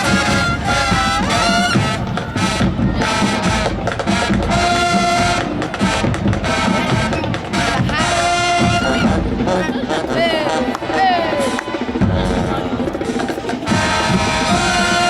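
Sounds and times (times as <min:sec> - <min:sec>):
brass chords: 0:00.0 - 0:15.0
steady drum beat: 0:00.0 - 0:15.0.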